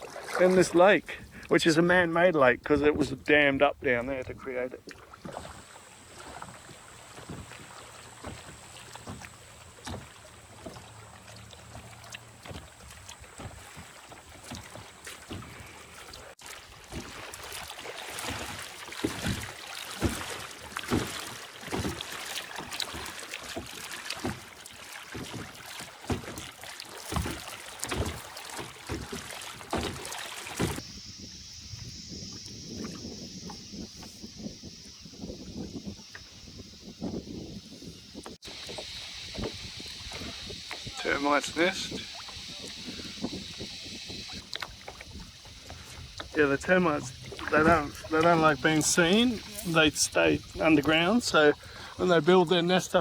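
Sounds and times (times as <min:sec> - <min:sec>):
paddle splashing in water: 0:00.0 - 0:53.0
steady high buzz: 0:30.8 - 0:36.4.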